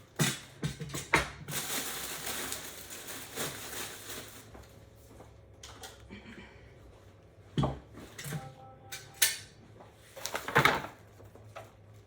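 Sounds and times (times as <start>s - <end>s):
plastic film crinkling: 1.4s - 4.6s.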